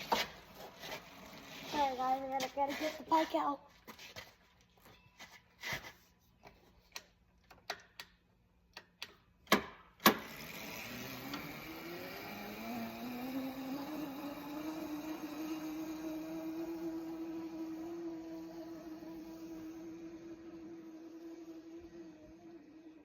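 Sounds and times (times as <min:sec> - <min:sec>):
electric motor whining: 0:10.1 - 0:23.0.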